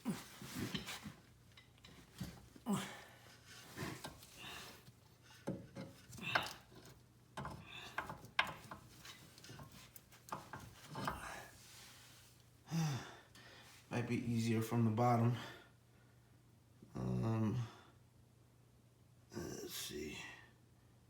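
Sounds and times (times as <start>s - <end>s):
man breathing and grunting: 0.0s - 1.1s, 2.6s - 4.9s, 12.7s - 13.6s
knocks and scrapes of car axle: 0.1s - 2.6s, 3.4s - 12.0s.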